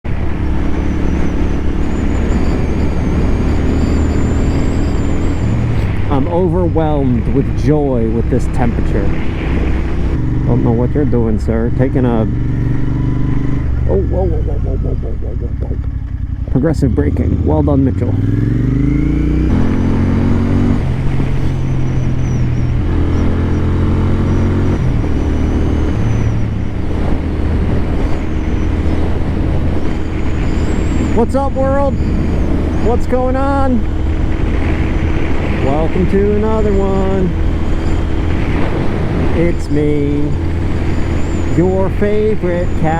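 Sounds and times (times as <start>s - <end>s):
wind noise on microphone: 0.0s - 8.0s, 8.6s - 11.4s, 18.0s - 41.9s
motorcycle engine running: 0.0s - 42.9s.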